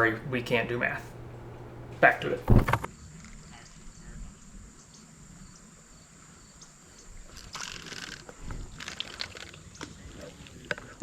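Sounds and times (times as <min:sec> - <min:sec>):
short rustling noises: 0:01.0 - 0:02.9.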